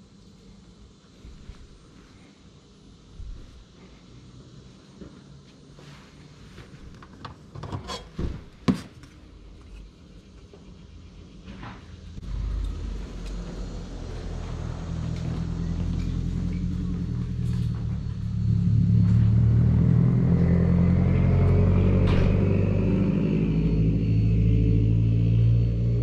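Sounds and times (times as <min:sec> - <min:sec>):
car engine running: 0:12.1 - 0:26.0.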